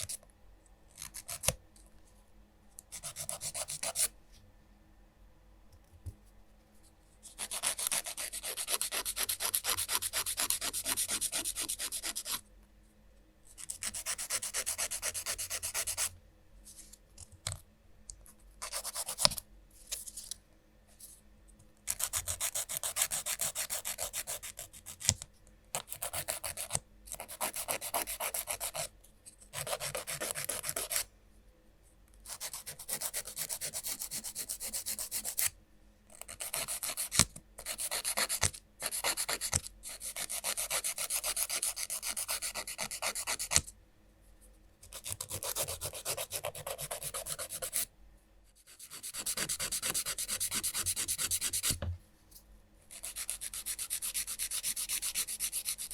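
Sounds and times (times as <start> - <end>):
nail file rasping on fingernails: 2.9 - 4.1, 7.3 - 12.4, 13.6 - 16.1, 21.9 - 25.1, 25.8 - 28.9, 29.5 - 31.0, 32.3 - 35.5, 36.2 - 43.7, 44.9 - 47.9, 48.7 - 51.8, 52.9 - 55.9.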